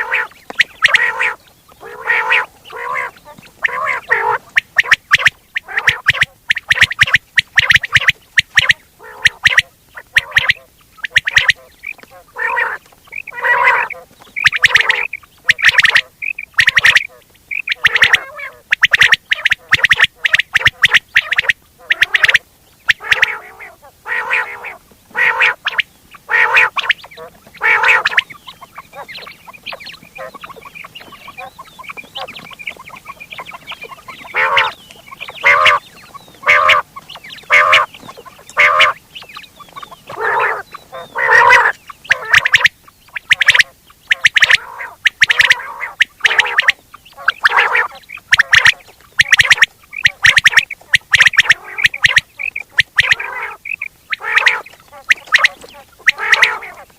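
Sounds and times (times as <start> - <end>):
faint rapid chattering: 0.0 - 12.0, 25.5 - 56.6
quail calling: 0.0 - 56.9.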